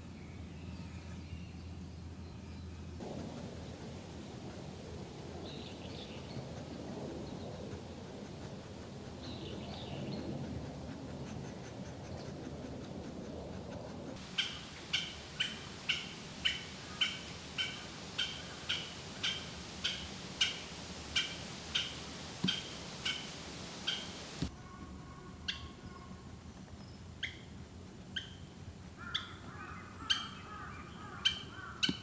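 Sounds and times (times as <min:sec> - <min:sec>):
woodpecker calling: 0:14.2 - 0:24.5, 0:28.1 - 0:32.0
faint bird chirps: 0:14.4 - 0:27.5.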